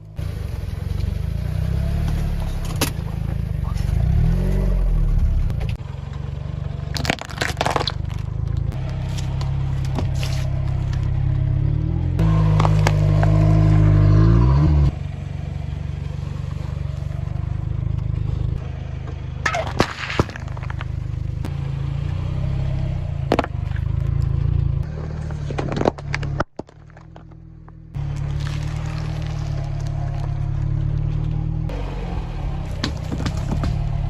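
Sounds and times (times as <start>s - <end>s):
car engine running slowly: 0.0s - 34.0s
tyres crushing objects: 6.9s - 11.1s, 12.4s - 13.7s, 19.4s - 21.2s, 23.3s - 24.0s, 24.9s - 30.4s, 32.7s - 34.0s.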